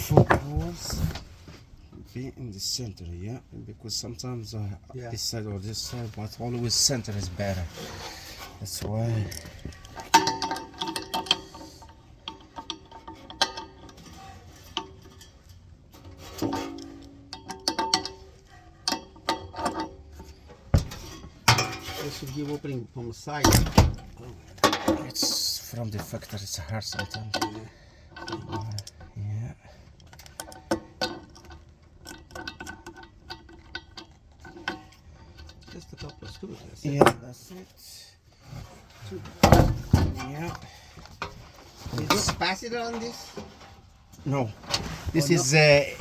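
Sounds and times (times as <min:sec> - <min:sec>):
metal parts clanking: 0:06.6 - 0:29.1, 0:30.0 - 0:37.6.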